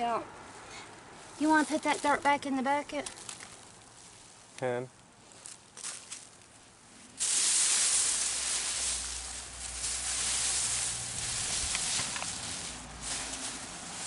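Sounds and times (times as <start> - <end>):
soil poured into plastic bucket: 7.2 - 13.4.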